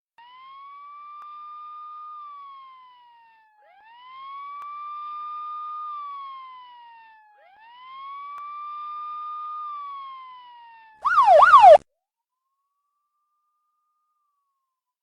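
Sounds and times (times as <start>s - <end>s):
police siren wailing: 0.2s - 11.8s.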